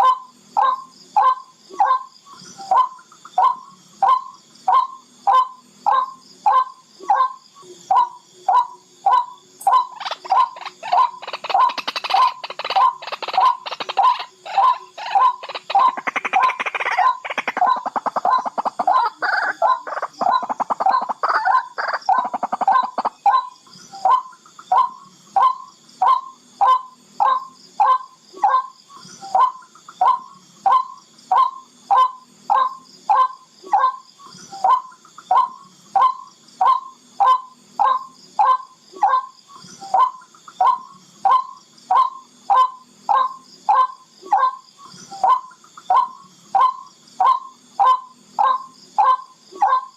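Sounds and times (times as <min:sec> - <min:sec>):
harsh rapid bird chattering: 0:00.0 - 0:34.0
bird's sharp repeated call notes: 0:00.0 - 0:49.9.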